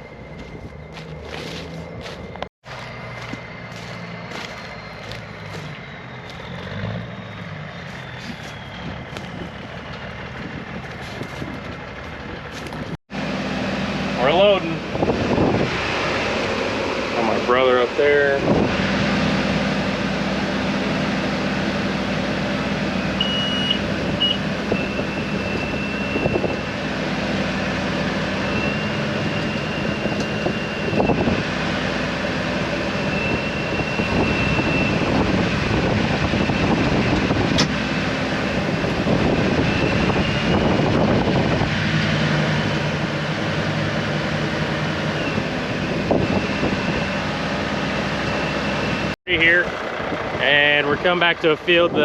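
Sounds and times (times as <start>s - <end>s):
diesel tractor engine running: 0.0s - 52.0s.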